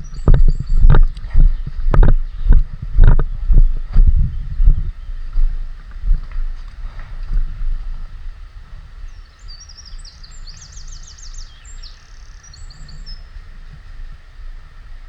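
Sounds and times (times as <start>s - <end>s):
small bird singing: 0.0s - 6.2s, 8.9s - 13.6s
wind rumble on microphone: 0.0s - 15.0s.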